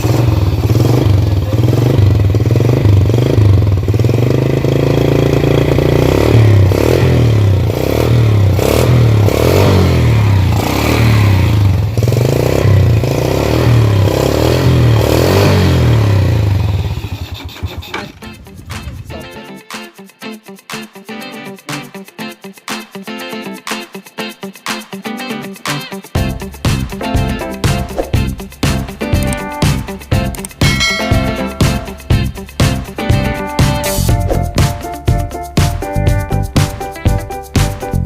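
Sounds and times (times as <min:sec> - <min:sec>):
motorcycle engine revving: 0:00.0 - 0:19.1.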